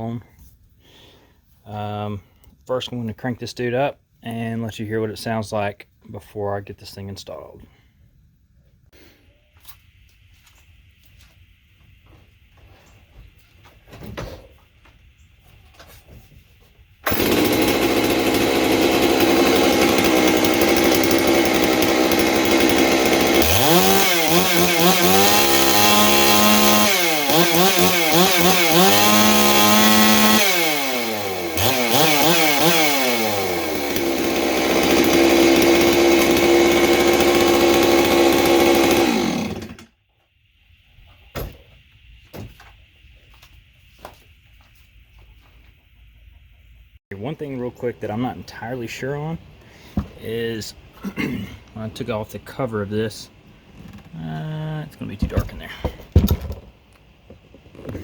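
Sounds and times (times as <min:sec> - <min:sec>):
chainsaw running and revving: 0:17.1 - 0:39.9.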